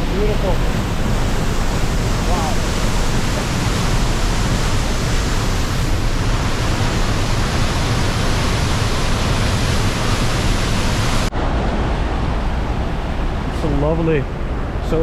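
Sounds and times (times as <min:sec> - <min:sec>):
waterfall crashing onto rocks: 0:00.0 - 0:11.6
dull rushing sound: 0:00.0 - 0:15.0.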